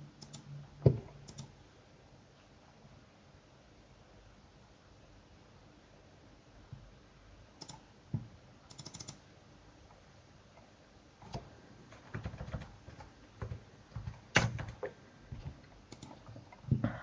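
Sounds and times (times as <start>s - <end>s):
typing on computer keyboard: 1.2s - 1.6s, 7.6s - 7.8s, 8.7s - 9.2s, 11.2s - 16.7s.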